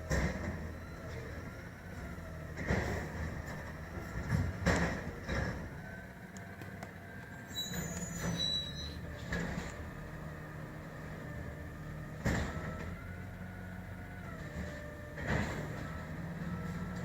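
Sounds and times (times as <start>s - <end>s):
garbage truck engine running: 0.0s - 17.0s
high squeal: 7.5s - 9.1s.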